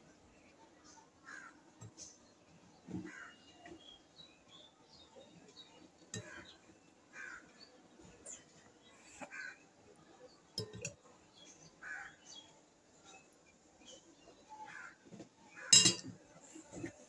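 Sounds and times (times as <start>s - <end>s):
faint bird calls: 2.8s - 4.0s, 6.2s - 10.2s.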